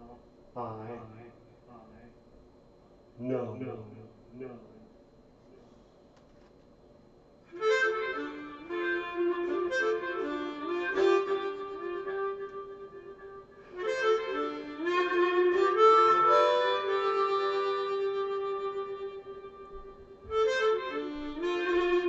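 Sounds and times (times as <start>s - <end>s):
harmonica playing: 7.5s - 22.0s.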